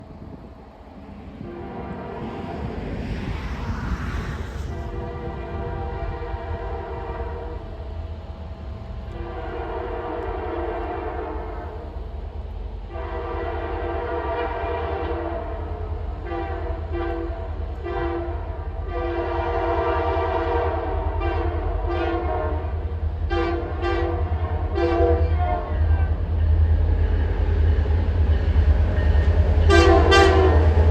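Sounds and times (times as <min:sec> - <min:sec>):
train rumble: 0:00.0 - 0:30.9
locomotive air horn blasts: 0:09.1 - 0:11.8, 0:12.9 - 0:15.6, 0:16.2 - 0:22.7, 0:23.3 - 0:25.7, 0:29.6 - 0:30.7.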